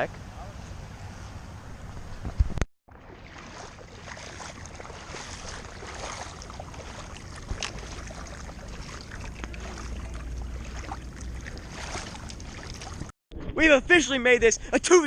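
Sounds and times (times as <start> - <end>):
wind rumble on microphone: 0.0 - 2.6, 4.2 - 14.0
floodwater rushing: 2.9 - 13.1.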